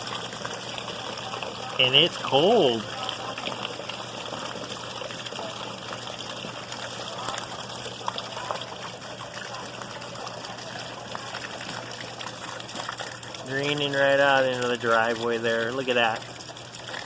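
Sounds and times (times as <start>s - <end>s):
water pouring from roof gutter: 0.0s - 17.0s.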